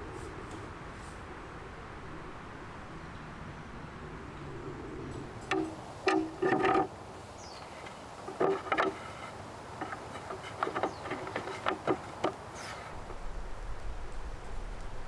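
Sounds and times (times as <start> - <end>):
birds short harsh calls: 6.7 - 13.0.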